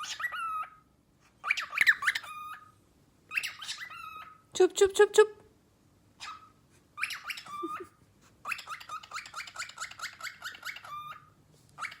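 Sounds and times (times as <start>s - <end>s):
cockatiel chirping: 0.0s - 4.4s, 6.2s - 12.0s.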